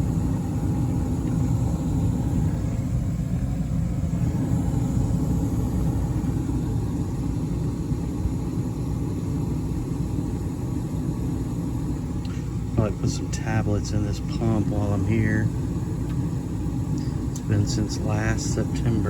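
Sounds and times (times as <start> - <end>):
gas furnace running: 0.0 - 19.0.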